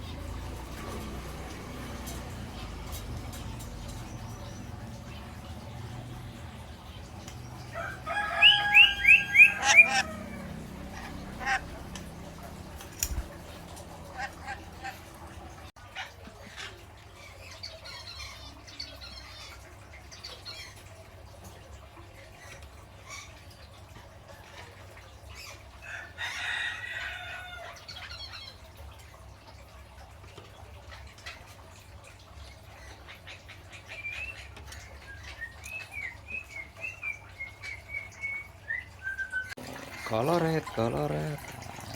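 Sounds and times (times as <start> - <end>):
parrot whistle-like calls: 8.1 - 10.4
parrot chattering: 8.1 - 16.8.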